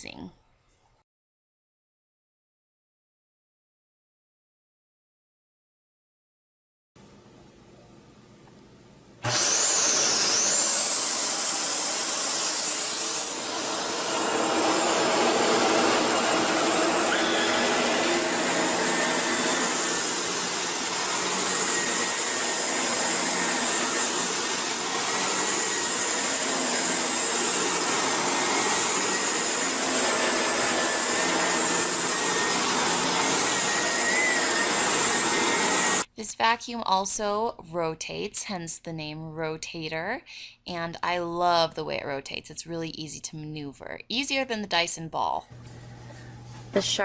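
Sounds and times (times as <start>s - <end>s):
upright vacuum cleaner motor whine: 9.2s - 36.1s.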